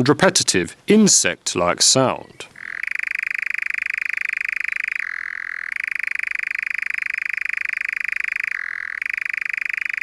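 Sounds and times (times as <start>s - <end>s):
nightjar churring: 2.6s - 10.0s.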